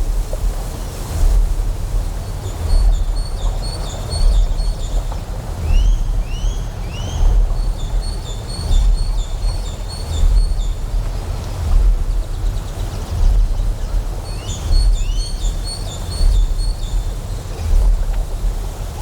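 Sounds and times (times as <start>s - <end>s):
deep generator hum: 0.0s - 19.0s
flowing water: 0.0s - 19.0s.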